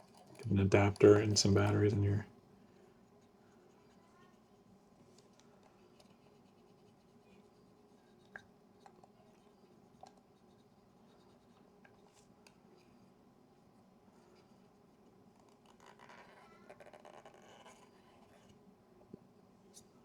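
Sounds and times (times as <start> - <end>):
light scratching: 0.4 - 2.2.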